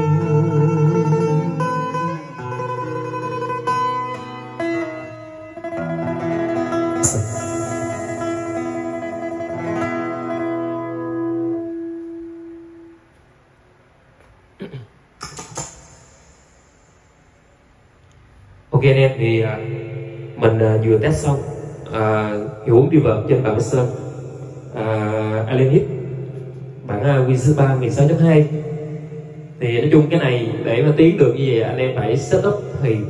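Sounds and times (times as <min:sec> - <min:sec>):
plucked guitar backing music: 0:00.0 - 0:13.2.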